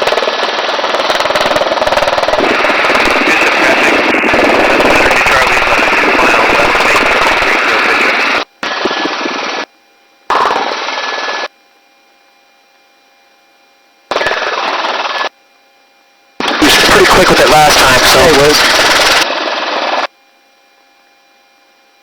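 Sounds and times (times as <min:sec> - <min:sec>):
helicopter rotor chopping: 0:00.0 - 0:09.6, 0:10.3 - 0:11.5, 0:14.1 - 0:15.3, 0:16.4 - 0:20.1.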